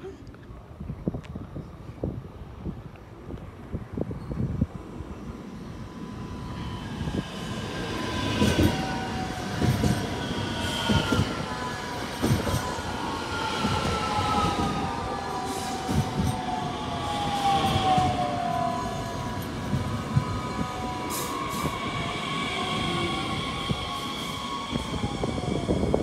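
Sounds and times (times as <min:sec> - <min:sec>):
electric train pulling in: 0:04.1 - 0:26.0.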